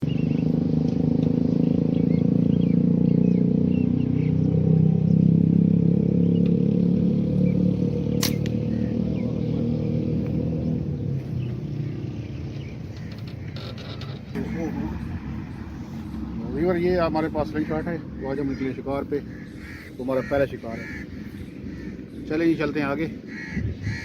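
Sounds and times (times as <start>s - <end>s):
vehicle engine running: 0.0s - 24.0s
sharp click: 8.2s - 8.6s.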